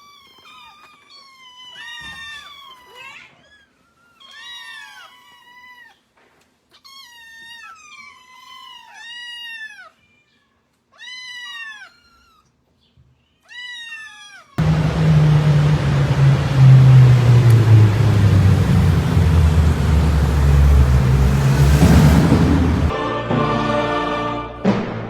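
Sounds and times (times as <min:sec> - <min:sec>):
cat meowing: 0:00.0 - 0:03.6, 0:04.2 - 0:06.0, 0:06.7 - 0:12.5, 0:13.4 - 0:14.6.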